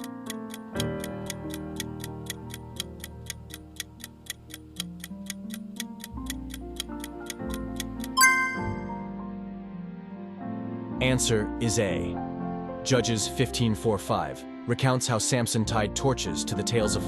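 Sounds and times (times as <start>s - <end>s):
countdown timer ticking: 0.0s - 9.1s
soft background music: 0.0s - 17.0s
bright chime: 8.2s - 9.0s.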